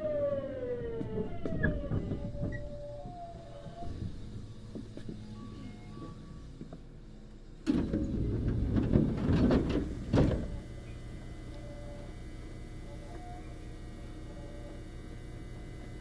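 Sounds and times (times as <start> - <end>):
low train hum: 0.0 - 16.0
train doors sliding and rattling: 0.8 - 6.9, 7.6 - 10.8.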